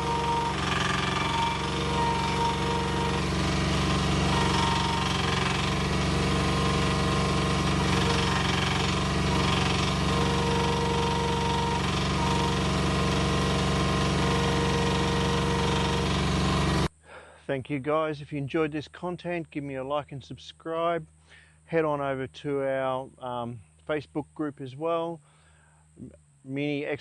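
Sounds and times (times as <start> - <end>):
diesel engine running: 0.0 - 17.0
hydraulic whine: 0.0 - 17.0.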